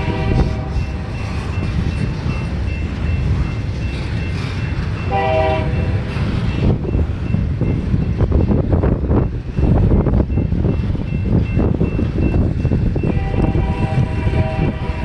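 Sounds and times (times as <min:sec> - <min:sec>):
locomotive air horn blast: 0:00.0 - 0:00.9, 0:05.1 - 0:05.9, 0:13.1 - 0:15.0
train passing rumble: 0:00.0 - 0:15.0
wind buffeting microphone: 0:00.0 - 0:15.0.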